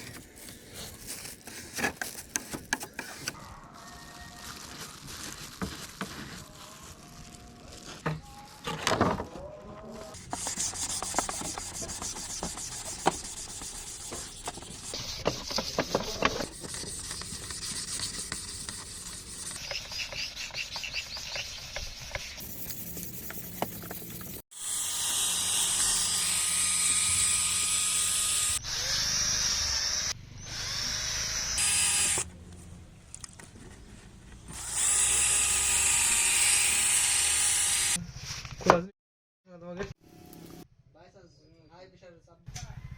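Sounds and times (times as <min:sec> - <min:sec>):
power tool scraping: 0:24.2 - 0:32.3, 0:34.5 - 0:38.0
power tool high-pitched whine: 0:24.5 - 0:32.3, 0:34.5 - 0:38.0.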